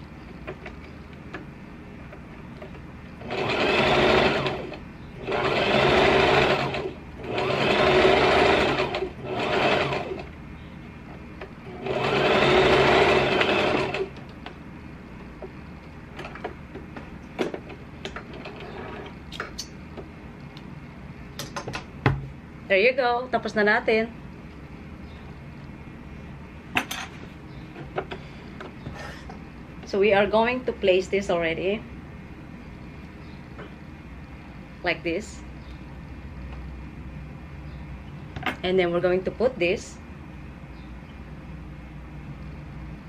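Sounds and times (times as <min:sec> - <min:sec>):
sewing machine stitching: 0:03.2 - 0:10.3, 0:11.7 - 0:14.2.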